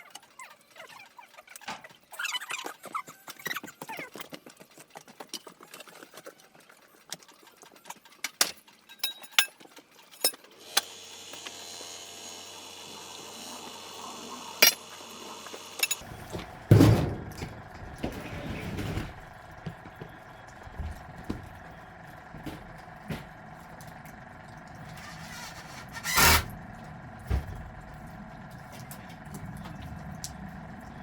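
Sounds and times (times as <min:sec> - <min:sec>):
hard objects clinking: 0:08.3 - 0:10.4
clattering and scraping: 0:15.8 - 0:29.3.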